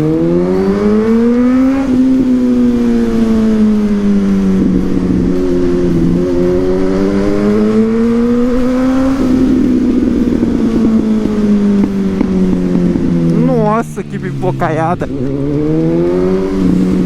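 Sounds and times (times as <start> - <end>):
motorcycle engine revving: 0.0 - 17.0
exhaust crackling and popping: 3.4 - 17.0.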